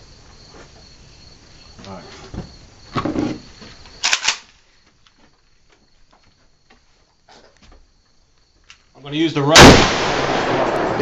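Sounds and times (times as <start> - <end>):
crickets chirring: 0.0 - 11.0
gunshots: 9.5 - 11.0.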